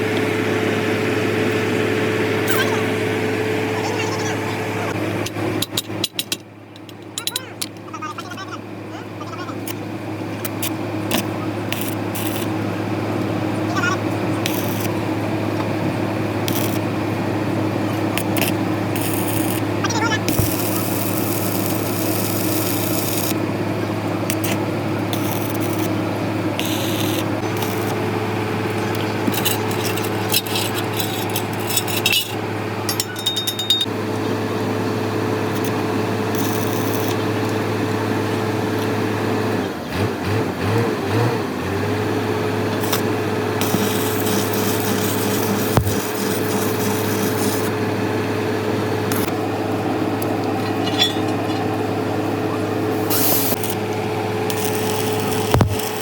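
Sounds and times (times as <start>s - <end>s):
workshop machine hum: 0.0s - 56.0s
tool clicks and taps: 45.7s - 46.1s, 55.4s - 56.0s.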